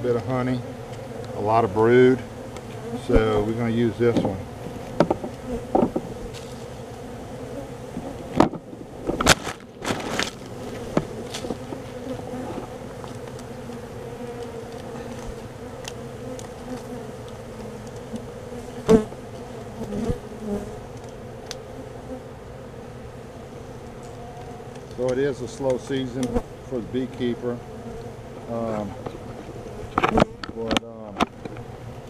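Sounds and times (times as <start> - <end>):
honey bees buzzing: 0.0 - 32.0
sharp knocks and clicks: 4.9 - 6.1.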